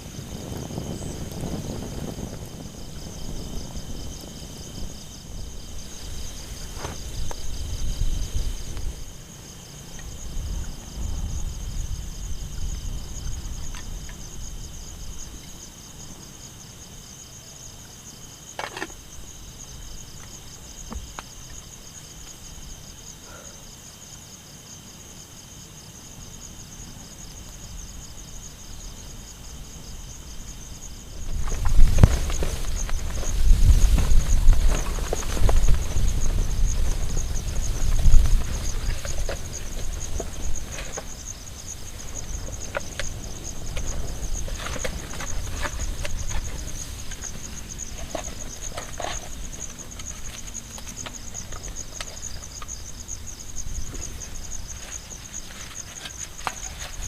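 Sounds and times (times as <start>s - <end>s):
low rumbling gusts: 0.0s - 16.6s, 26.4s - 55.6s
insects trilling: 0.0s - 57.0s
rustling handling noise: 53.8s - 57.0s.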